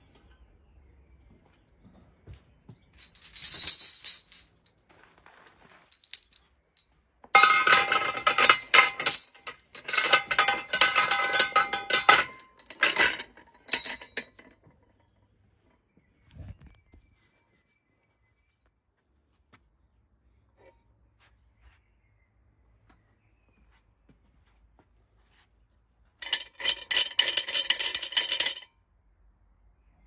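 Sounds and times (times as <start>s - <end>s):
chain rattling against metal: 2.8s - 15.2s, 26.2s - 28.8s.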